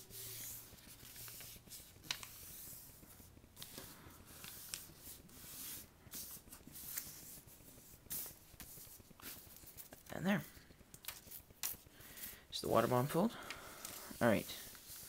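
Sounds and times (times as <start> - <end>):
paper rustling and scraping: 0.0 - 10.1, 13.8 - 15.0
sharp paper crinkles: 13.8 - 15.0.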